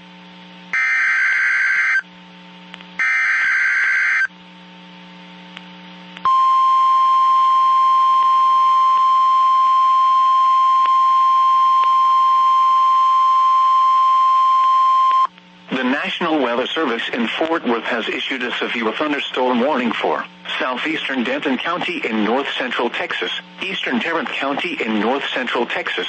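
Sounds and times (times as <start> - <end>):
steady warning tone: 0.8 - 2.1, 3.0 - 4.3.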